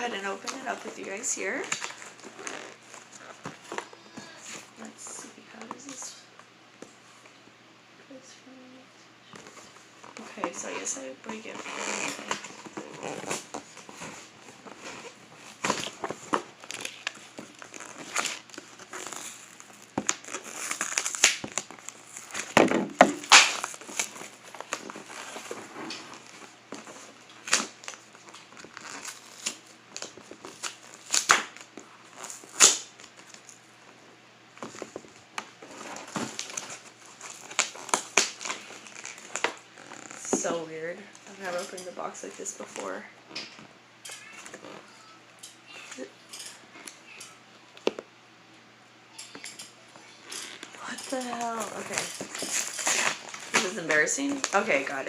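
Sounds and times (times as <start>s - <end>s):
cardboard box crunching and tearing: 15.6s - 33.3s, 35.6s - 40.2s, 50.8s - 54.9s
sharp cracks: 19.9s - 21.7s, 22.4s - 24.1s, 32.5s - 33.1s.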